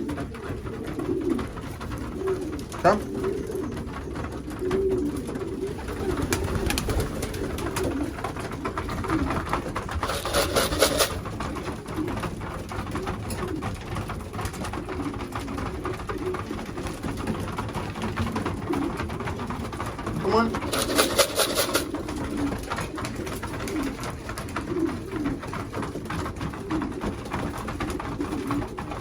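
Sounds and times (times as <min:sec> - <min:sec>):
pigeons cooing: 0:00.0 - 0:29.0
rustling burst: 0:10.0 - 0:11.2, 0:20.6 - 0:22.0.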